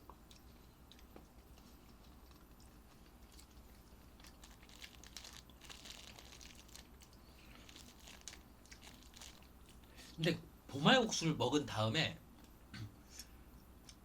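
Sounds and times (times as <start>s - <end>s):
small clicks and crackles: 0.0s - 9.9s
person chewing: 0.0s - 10.0s.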